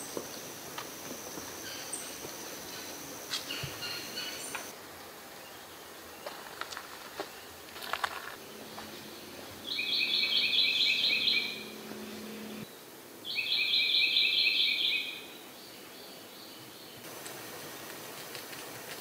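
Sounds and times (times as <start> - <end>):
songbird singing rapid notes: 8.6 - 12.7, 13.3 - 17.0.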